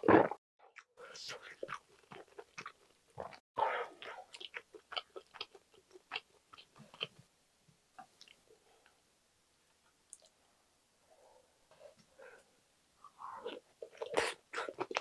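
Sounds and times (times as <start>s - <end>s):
close chewing of food: 0.7s - 7.2s, 13.3s - 15.0s.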